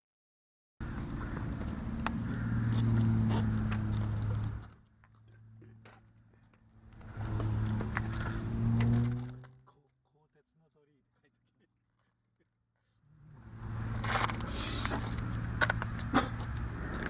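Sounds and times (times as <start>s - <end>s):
aircraft engine drone: 0.8s - 8.8s, 13.1s - 17.0s.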